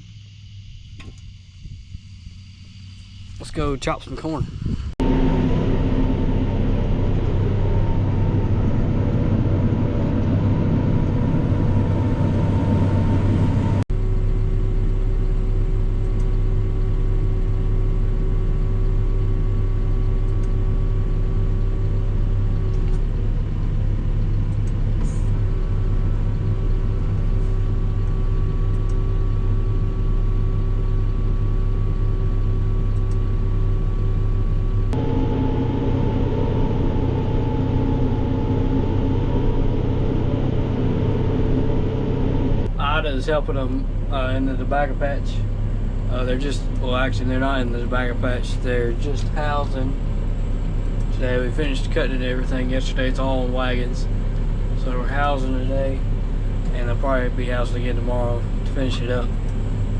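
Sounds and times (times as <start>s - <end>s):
diesel engine drone: 0.0s - 59.9s
steady whining tones: 0.0s - 59.9s.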